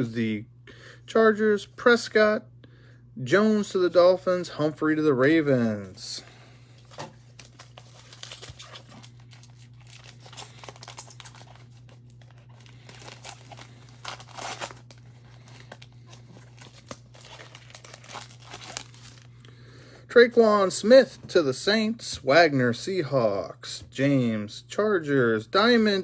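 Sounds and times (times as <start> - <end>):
cards rustling and sliding: 6.8 - 19.2
foil wrapper tearing and crinkling: 6.8 - 19.4.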